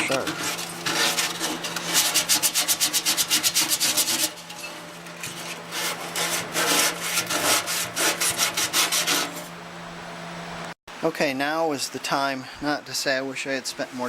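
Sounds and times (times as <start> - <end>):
sandpaper scrubbing inside steel tank: 0.0 - 9.6.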